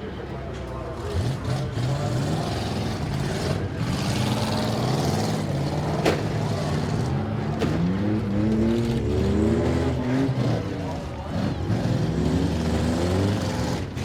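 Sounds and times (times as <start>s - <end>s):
car engines revving: 0.0s - 14.0s
car collision bang: 5.9s - 6.6s.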